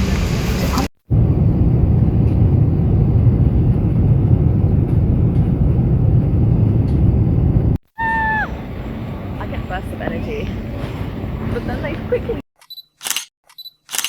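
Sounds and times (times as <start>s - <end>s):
vehicle interior rumble: 0.0s - 12.4s.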